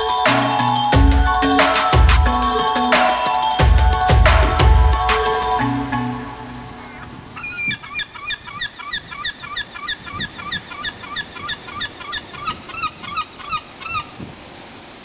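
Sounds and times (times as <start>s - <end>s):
bird calling in fast series: 6.8s - 14.2s.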